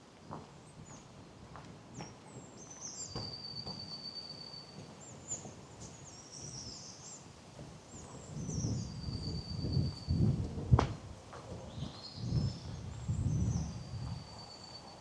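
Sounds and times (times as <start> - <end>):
light footsteps on a path: 0.2 - 4.0, 4.8 - 6.1, 10.8 - 12.1.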